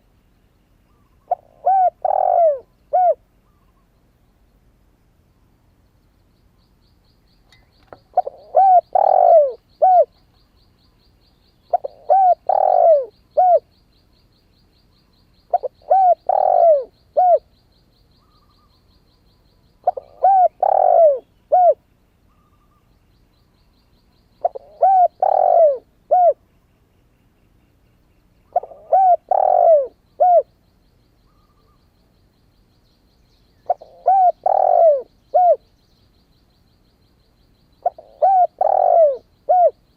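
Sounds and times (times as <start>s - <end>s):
dove cooing: 0.9s - 3.8s, 8.1s - 10.2s, 11.7s - 13.7s, 15.5s - 17.5s, 19.8s - 22.8s, 24.4s - 26.4s, 28.5s - 30.5s, 33.6s - 35.7s, 37.8s - 39.8s.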